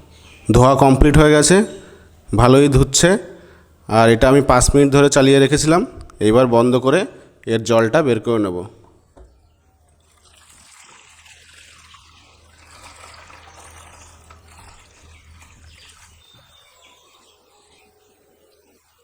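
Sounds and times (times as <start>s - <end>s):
steady low hum: 0.0s - 18.9s
water trickling and pouring: 9.8s - 17.8s.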